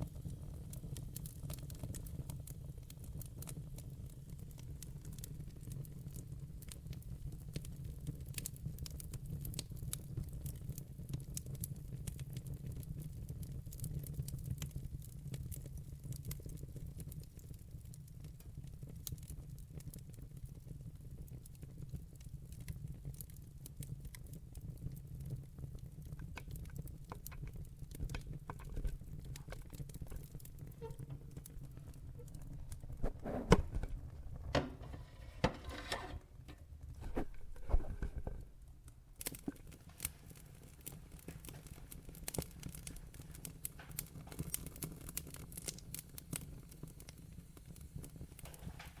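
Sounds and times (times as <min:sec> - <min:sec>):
fire crackling and popping: 0:00.0 - 0:49.0
fire rumbling: 0:26.0 - 0:47.0.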